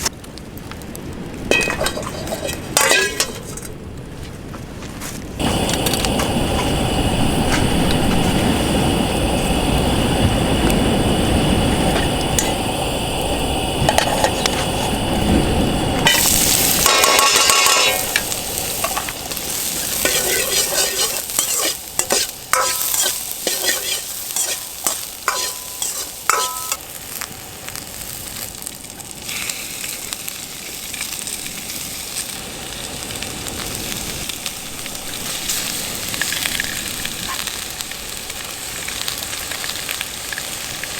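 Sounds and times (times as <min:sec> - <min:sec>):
food sizzling: 0:01.4 - 0:04.2, 0:05.3 - 0:40.9
metal utensil scraping a pot: 0:01.5 - 0:03.8, 0:16.0 - 0:19.2, 0:20.0 - 0:26.8.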